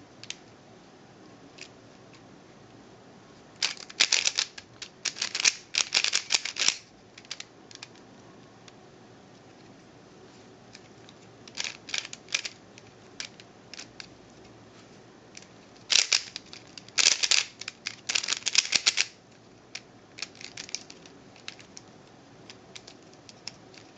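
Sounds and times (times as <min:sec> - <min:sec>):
puzzle cube plastic clicks: 0:03.6 - 0:08.0, 0:10.8 - 0:14.1, 0:15.4 - 0:23.9.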